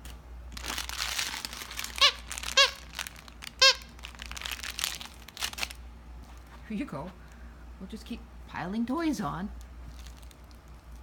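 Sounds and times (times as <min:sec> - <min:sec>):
crinkling: 0:00.0 - 0:06.6, 0:09.6 - 0:11.0
dog toys rustling: 0:00.6 - 0:06.7, 0:09.8 - 0:11.0
squeaker toy squeaking: 0:01.8 - 0:02.9, 0:03.6 - 0:03.9.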